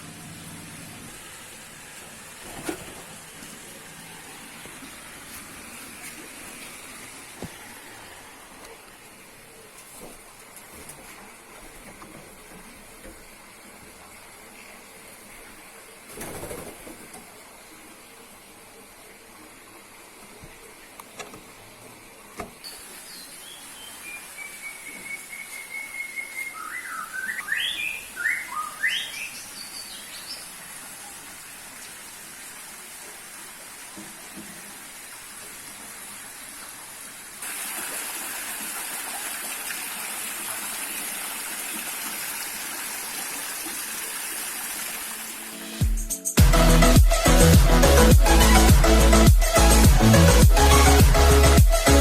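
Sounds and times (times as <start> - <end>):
steady hiss: 0.0 - 50.6
songbird whistled notes: 22.6 - 30.0.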